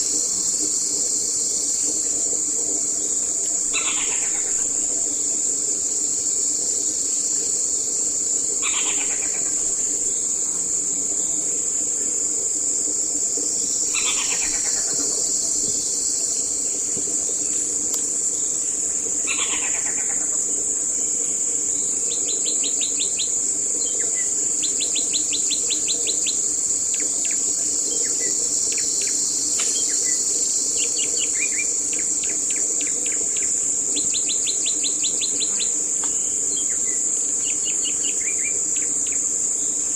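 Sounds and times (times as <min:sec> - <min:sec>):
high-pitched insect drone: 0:00.0 - 0:11.3, 0:12.6 - 0:21.9.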